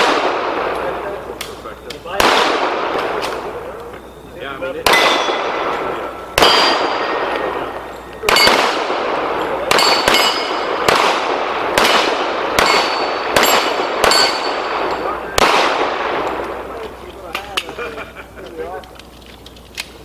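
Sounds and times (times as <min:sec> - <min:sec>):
pistol shots: 0:00.0 - 0:04.2, 0:04.8 - 0:17.0
steel plate clanging: 0:09.4 - 0:10.9, 0:12.6 - 0:15.1.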